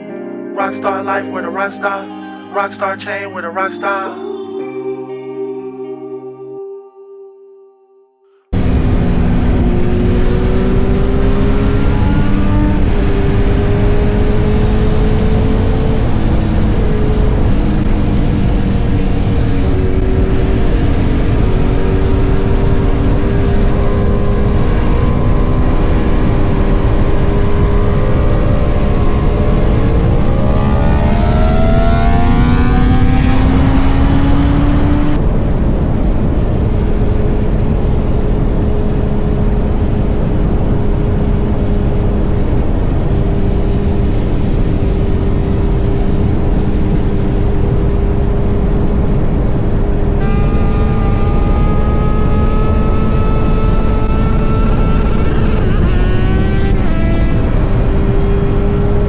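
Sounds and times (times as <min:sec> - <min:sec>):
higher-pitched engine: 0:08.5 - 0:59.0
wind rush: 0:08.5 - 0:59.0
motorcycle engine running: 0:08.6 - 0:59.0.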